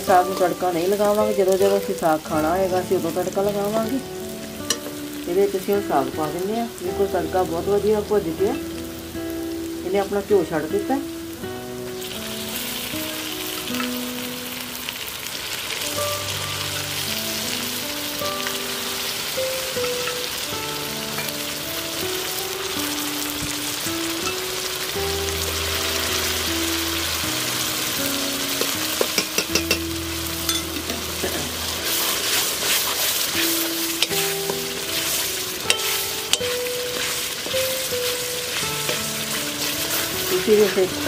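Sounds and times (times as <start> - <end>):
greens sizzling in ghee: 0.0 - 41.0
quiet slow background music: 0.0 - 41.0
steel ladle scraping a pan: 28.5 - 41.0.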